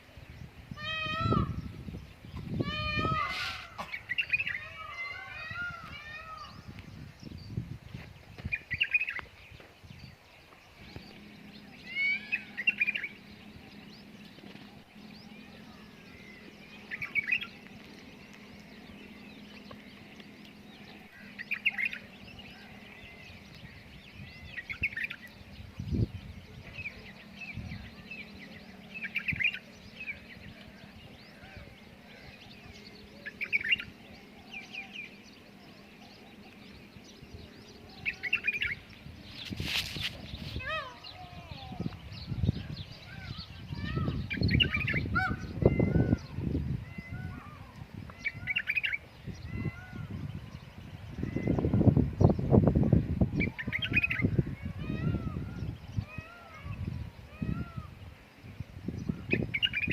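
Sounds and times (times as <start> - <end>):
faint steady hum: 0.0 - 39.5
birds chirping: 0.0 - 59.9.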